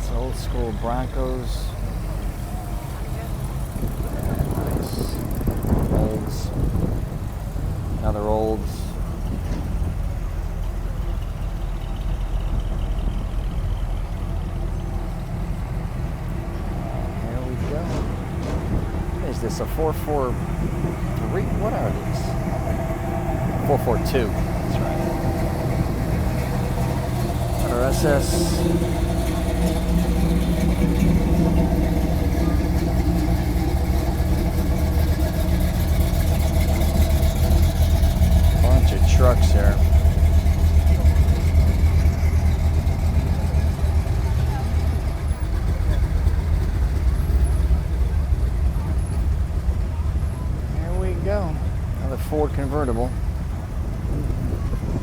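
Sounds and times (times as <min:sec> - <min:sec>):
car engines rumbling past: 0:00.0 - 0:55.0.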